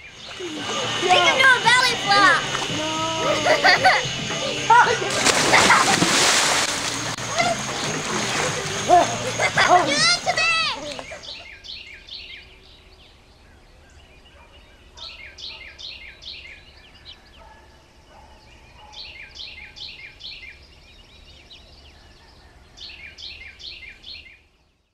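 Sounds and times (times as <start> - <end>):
bird calls with falling notes: 0.0 - 4.2, 7.2 - 17.5.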